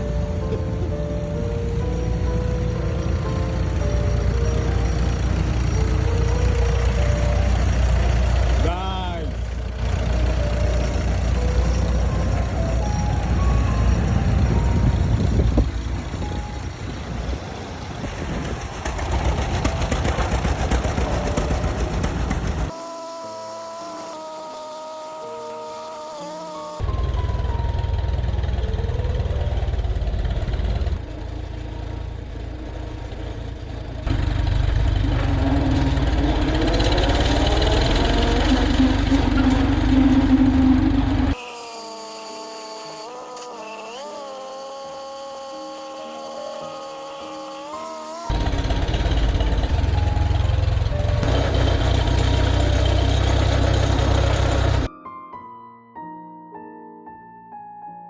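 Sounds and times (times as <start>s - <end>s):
quiet keyboard music: 0.0s - 18.1s, 19.8s - 33.7s, 44.6s - 51.3s, 54.8s - 58.0s
tractor engine rumbling: 0.0s - 25.4s, 26.8s - 41.4s, 48.1s - 54.9s.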